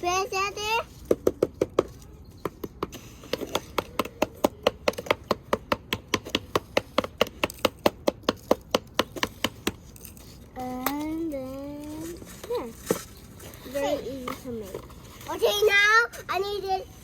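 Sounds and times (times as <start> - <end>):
toy tapping in sandbox: 0.2 - 13.1.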